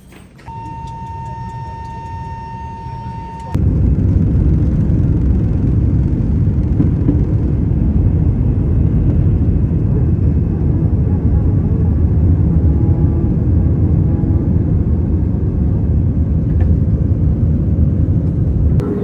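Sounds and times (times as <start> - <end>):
steady high tone: 0.5 - 3.6, 18.8 - 19.0
jet engines rumbling: 0.5 - 19.0.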